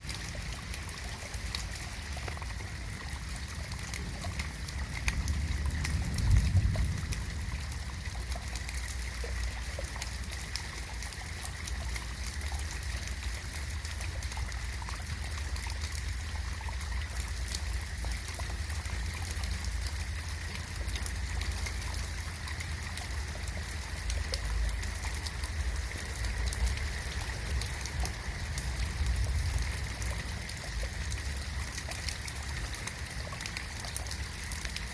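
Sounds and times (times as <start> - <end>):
rain pattering: 0.0 - 34.9
water trickling: 0.0 - 34.9
low rumble: 4.0 - 9.2.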